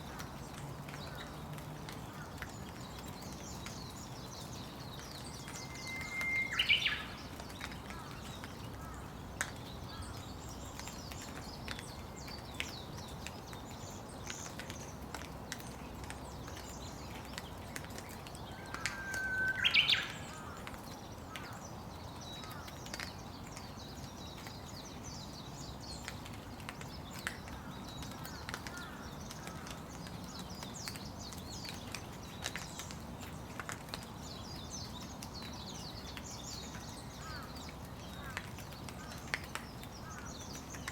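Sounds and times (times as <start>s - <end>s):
steady rain: 0.0s - 40.9s
bird whistle call: 5.6s - 7.0s.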